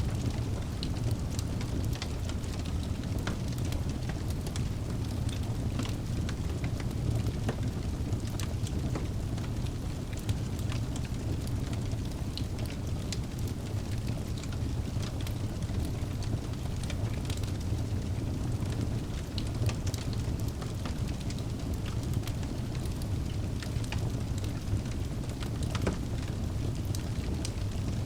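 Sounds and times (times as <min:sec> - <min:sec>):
burning wood crackling and popping: 0:00.0 - 0:28.0
low rumble of flame: 0:00.0 - 0:28.0.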